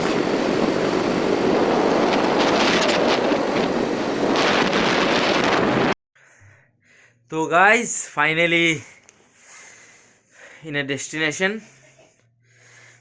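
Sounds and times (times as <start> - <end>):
wind on microphone: 0.0 - 6.0.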